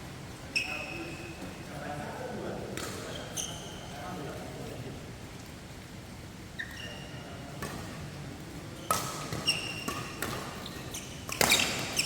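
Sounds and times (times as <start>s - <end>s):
shoes squeaking on court floor: 0.5s - 1.5s, 2.8s - 4.0s, 6.6s - 7.9s, 8.8s - 12.0s
racket hitting shuttlecock: 8.9s - 10.6s, 11.2s - 12.0s.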